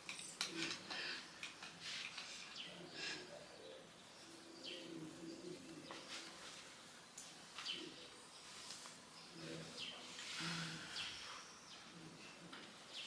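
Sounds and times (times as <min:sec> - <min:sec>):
soft rustling: 0:05.6 - 0:11.9.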